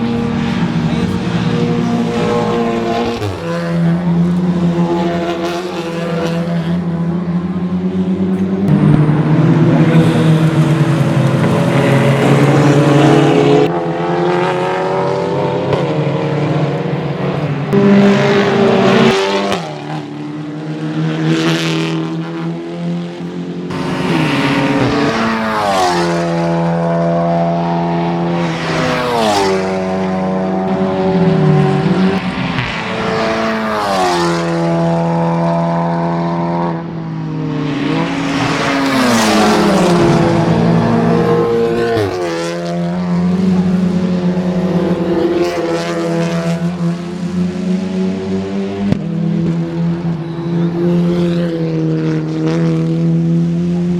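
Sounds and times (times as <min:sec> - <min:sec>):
race car engines passing at high revs: 0:00.0 - 0:53.9.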